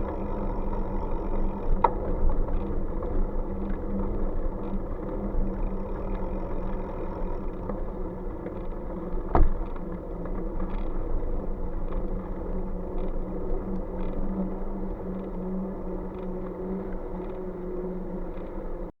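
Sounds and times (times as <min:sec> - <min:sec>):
road rumble and hum: 0:00.0 - 0:18.9.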